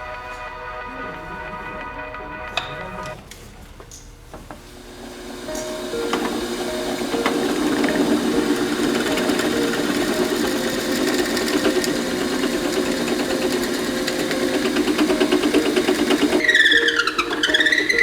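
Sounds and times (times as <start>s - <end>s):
background music: 0.0s - 3.2s, 5.3s - 18.0s.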